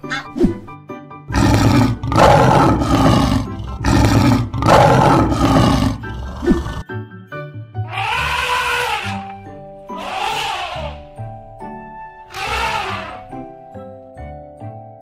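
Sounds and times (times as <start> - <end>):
background music: 0.0 - 15.0
lion roaring: 1.3 - 6.8.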